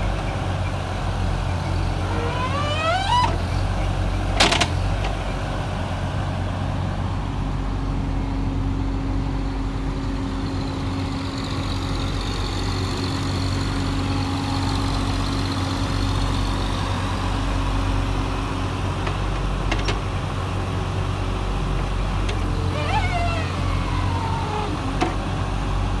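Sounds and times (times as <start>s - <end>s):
excavator diesel engine idling: 0.0s - 26.0s
pitch-sliding whines: 1.7s - 3.9s, 22.6s - 25.2s.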